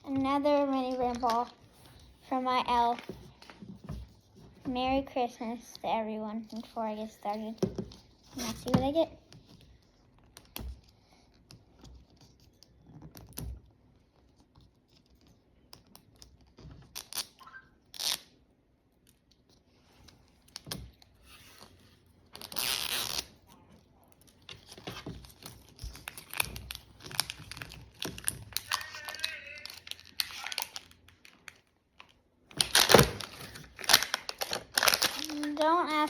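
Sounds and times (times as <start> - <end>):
plastic wrapping crinkling: 20.3 - 36.0
plastic wrapping tearing: 22.3 - 23.6, 24.3 - 36.0.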